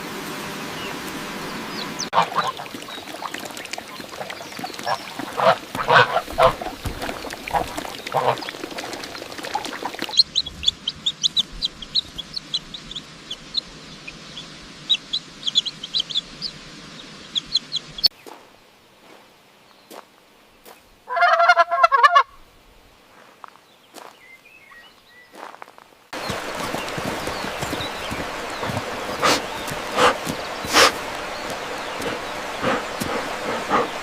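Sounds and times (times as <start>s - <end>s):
fowl peeping: 1.7s - 18.1s, 21.1s - 22.3s, 26.2s - 34.0s
loud fowl call: 2.1s - 2.7s, 4.8s - 8.5s, 21.1s - 22.4s, 26.2s - 34.0s.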